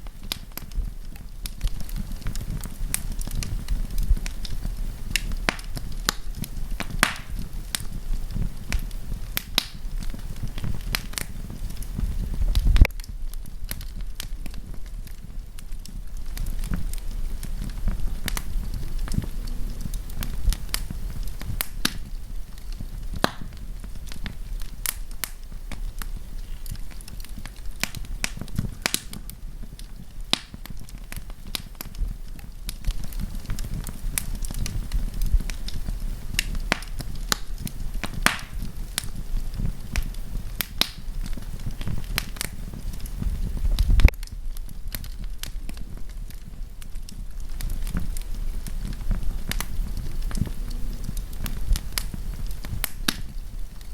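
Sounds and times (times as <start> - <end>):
burning wood popping: 0.0 - 53.9
low rumble of flames: 0.0 - 53.9.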